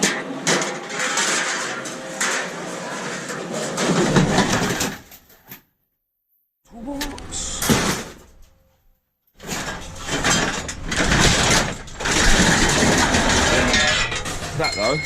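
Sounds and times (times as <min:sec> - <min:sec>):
scrap metal scraping and rattling: 0:00.0 - 0:05.6, 0:07.0 - 0:08.8, 0:09.4 - 0:15.0.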